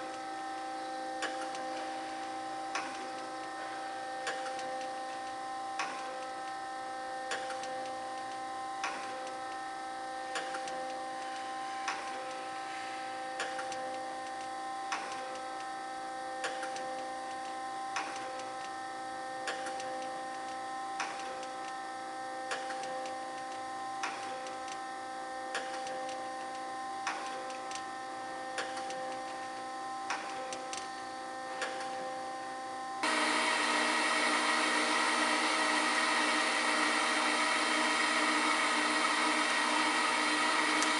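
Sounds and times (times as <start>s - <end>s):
loud rough running machine: 33.0s - 40.9s
surface grinder humming: 33.0s - 40.9s.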